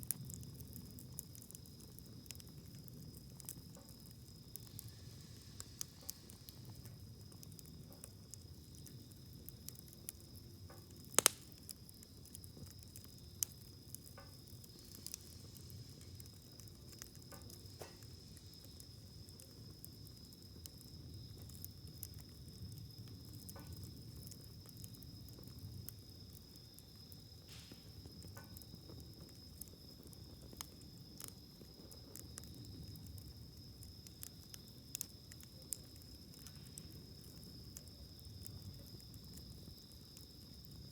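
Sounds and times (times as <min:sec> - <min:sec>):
campfire crackling and popping: 0:00.0 - 0:40.9
low rumble of flames: 0:00.0 - 0:40.9.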